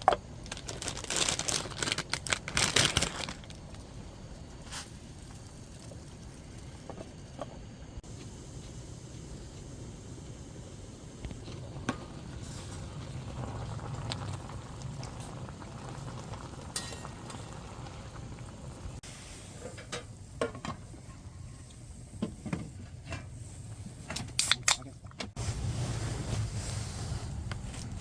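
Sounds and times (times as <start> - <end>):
food bubbling and sizzling: 2.0 - 19.6.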